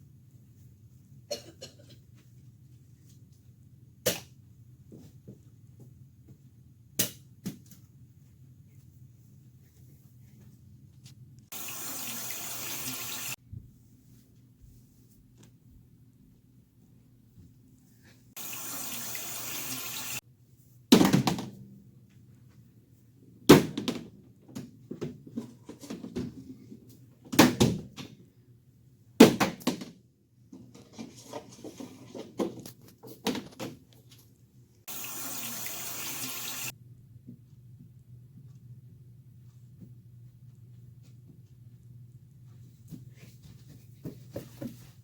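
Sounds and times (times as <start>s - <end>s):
water running from a tap: 11.5s - 13.4s, 18.4s - 20.2s, 34.9s - 36.7s.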